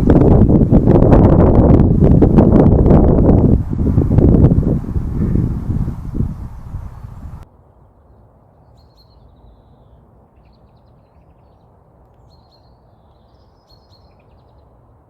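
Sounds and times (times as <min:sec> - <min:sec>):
low background rumble: 0:00.0 - 0:07.4
songbird singing: 0:03.7 - 0:14.9.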